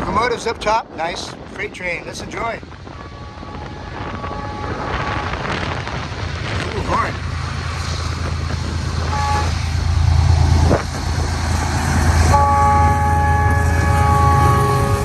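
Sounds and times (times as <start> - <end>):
diesel locomotives rumbling: 0.0 - 15.0
locomotive air horn: 2.9 - 5.8, 9.0 - 9.8, 12.2 - 15.0.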